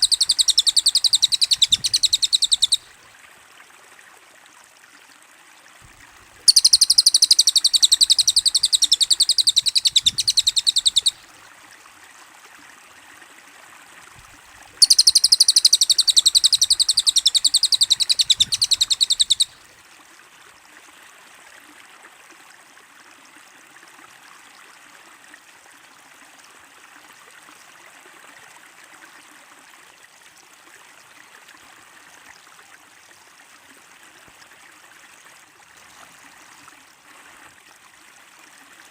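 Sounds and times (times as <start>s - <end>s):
high-pitched bird trilling: 0.0s - 2.8s, 6.4s - 11.2s, 14.8s - 19.5s.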